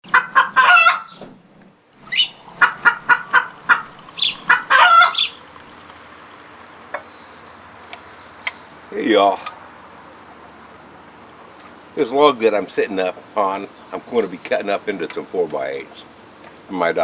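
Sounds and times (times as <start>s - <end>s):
chicken squawking: 0.0s - 5.9s
chickens clucking: 0.0s - 6.0s.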